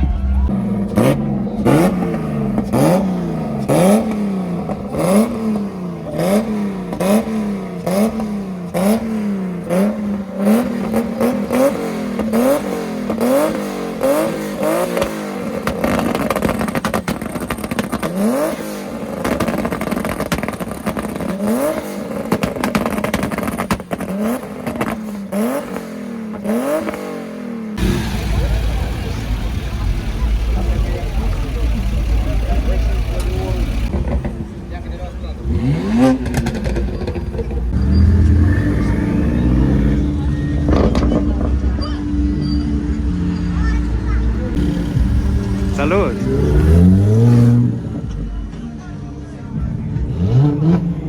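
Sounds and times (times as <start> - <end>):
car engine revving: 0.0 - 51.0.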